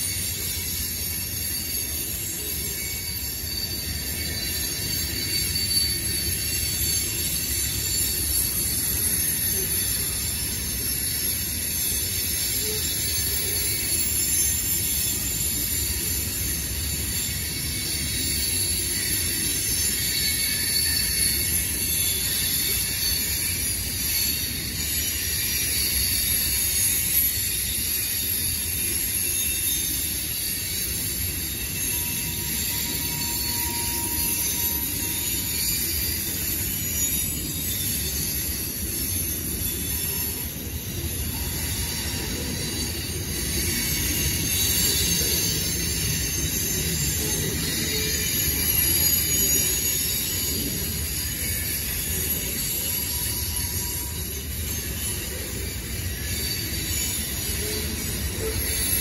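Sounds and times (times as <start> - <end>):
wheel squeal: 0.0 - 59.0.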